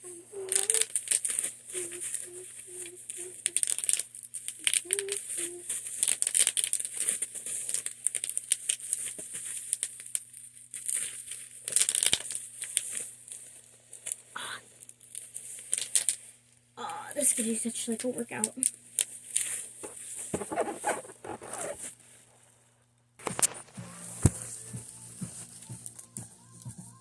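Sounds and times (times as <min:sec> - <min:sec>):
person humming a tune: 0:00.0 - 0:04.0, 0:04.6 - 0:05.8, 0:23.6 - 0:27.0
packaging crinkling and rustling: 0:00.0 - 0:16.5, 0:17.3 - 0:22.5, 0:23.2 - 0:24.7.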